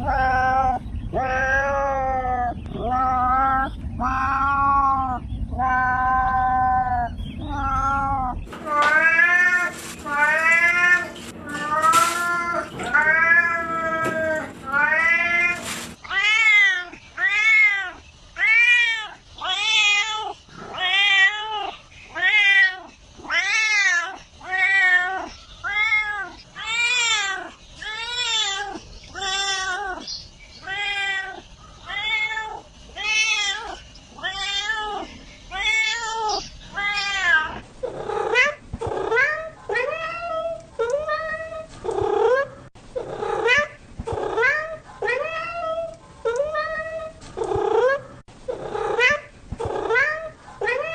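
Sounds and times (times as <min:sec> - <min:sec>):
cat meowing: 0:00.0 - 0:30.0, 0:30.6 - 0:37.6, 0:49.0 - 0:50.9.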